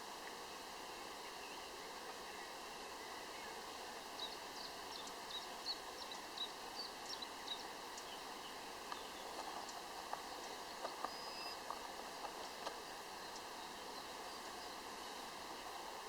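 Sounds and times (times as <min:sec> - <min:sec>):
background hiss: 0:00.0 - 0:16.0
bird chirping: 0:04.2 - 0:11.6.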